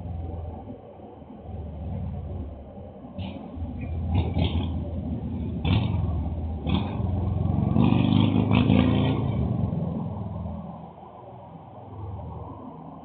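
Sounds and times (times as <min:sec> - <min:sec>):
motorcycle engine revving: 0:03.2 - 0:10.2.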